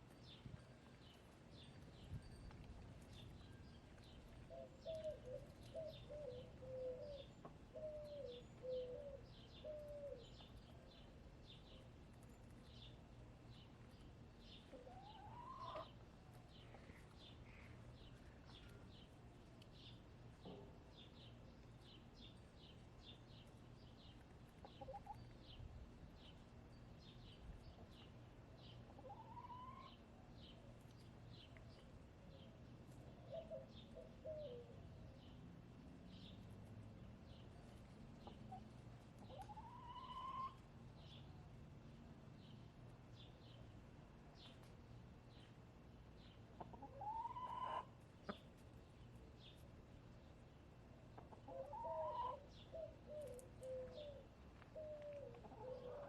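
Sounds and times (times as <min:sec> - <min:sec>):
faint low hum: 0:00.0 - 0:29.2
wild bird chirping: 0:04.4 - 0:11.1, 0:39.2 - 0:41.2, 0:51.2 - 0:56.0
hens calling softly: 0:14.7 - 0:18.9, 0:28.9 - 0:30.0, 0:38.2 - 0:40.7, 0:46.6 - 0:48.6, 0:51.2 - 0:56.0.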